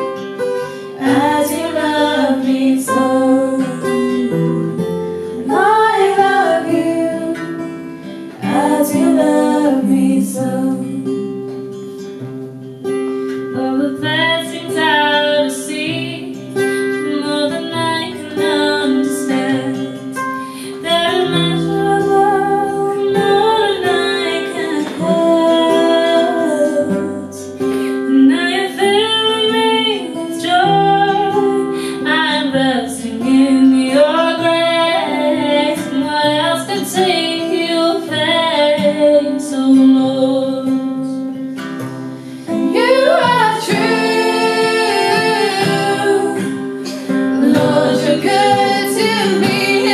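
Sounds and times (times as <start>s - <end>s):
acoustic guitar: 0.0s - 49.9s
women singing gospel song: 0.4s - 11.6s, 13.5s - 41.3s, 42.4s - 49.9s.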